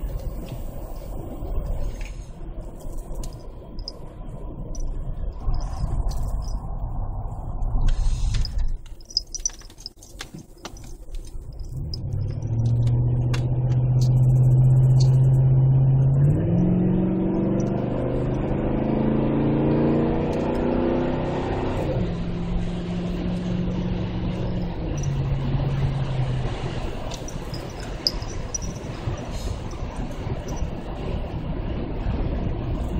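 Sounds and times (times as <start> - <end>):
clicks and rustles: 7.8 - 14.2, 27.0 - 30.7
car engine revving: 9.0 - 31.2.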